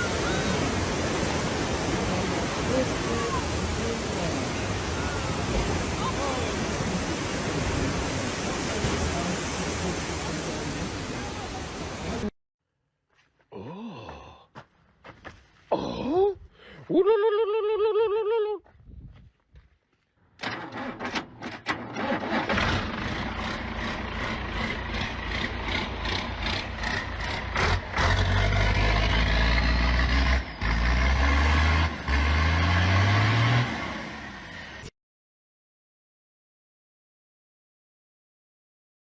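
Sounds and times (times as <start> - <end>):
heavy engine rumbling and revving: 20.4 - 34.9.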